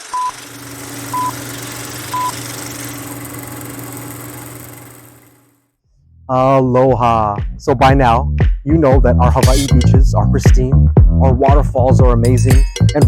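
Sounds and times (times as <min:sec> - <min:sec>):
short electronic beeps: 0:00.1 - 0:00.4, 0:01.1 - 0:01.4, 0:02.1 - 0:02.4.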